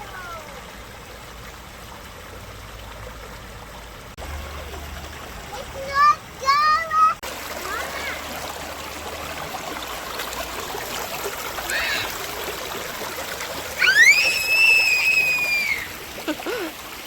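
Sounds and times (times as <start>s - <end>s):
river trickling over rocks: 0.0s - 17.0s
loud high drawn-out cry: 11.7s - 12.2s, 13.8s - 16.0s.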